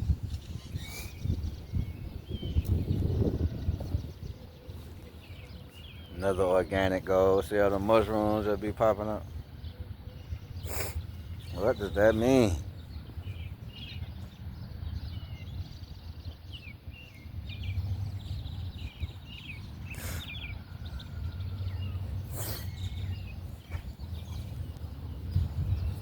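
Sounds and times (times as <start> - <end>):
small birds chirping: 0.0 - 26.0
low rumble on the microphone: 20.5 - 26.0.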